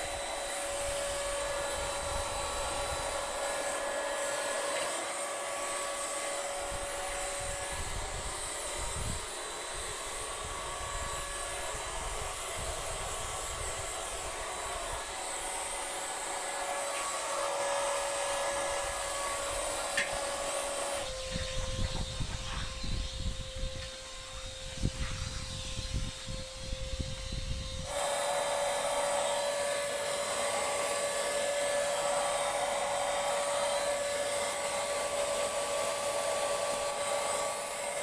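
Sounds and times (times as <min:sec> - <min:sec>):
paint sprayer hissing: 0:00.0 - 0:38.0
low motor hum: 0:17.7 - 0:28.0.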